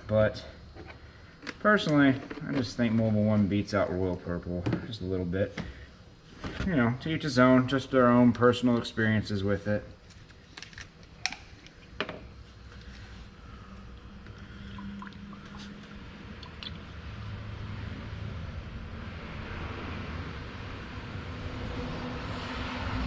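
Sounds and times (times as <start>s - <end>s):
oil pouring through funnel: 13.5s - 16.8s.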